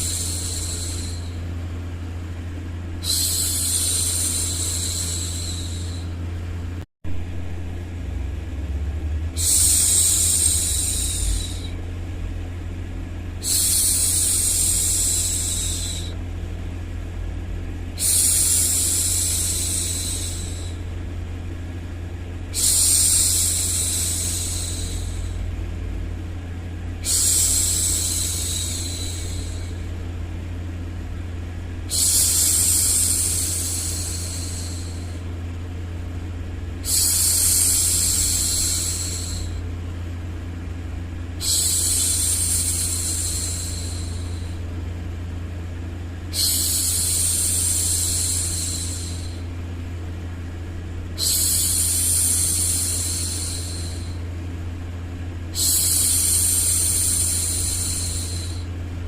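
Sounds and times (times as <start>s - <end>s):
woman hushing shhh: 0.0s - 1.6s, 3.0s - 6.2s, 9.4s - 11.8s, 13.4s - 16.2s, 18.0s - 20.9s, 22.5s - 25.6s, 26.9s - 30.0s, 31.7s - 35.3s, 36.8s - 39.7s, 41.3s - 44.8s, 46.2s - 49.6s, 51.1s - 54.3s, 55.5s - 58.8s
low white-noise hum: 0.0s - 59.0s.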